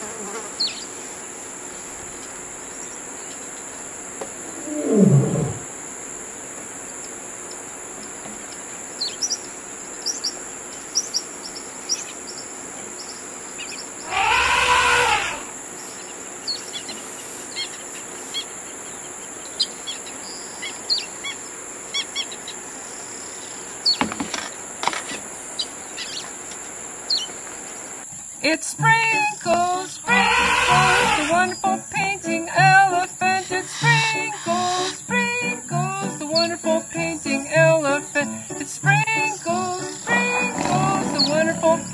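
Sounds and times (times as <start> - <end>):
steady hiss: 0.0 - 41.9
rising and falling bird call: 4.4 - 5.7, 14.0 - 15.5, 30.1 - 31.6, 39.5 - 41.9
bird chirps and tweets: 7.0 - 14.1, 15.8 - 22.6, 23.4 - 24.1, 25.6 - 26.3, 27.1 - 27.4, 33.3 - 35.2.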